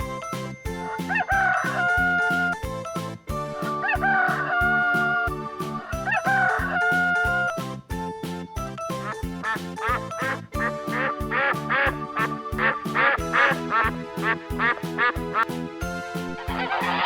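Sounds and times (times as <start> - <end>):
background music with steady beat: 0.0 - 17.0
rooster crowing: 1.1 - 2.6, 3.8 - 5.3, 5.9 - 7.5.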